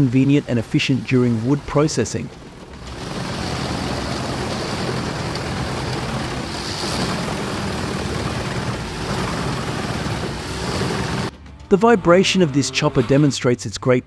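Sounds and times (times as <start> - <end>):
diesel engine hum: 0.0 - 13.3.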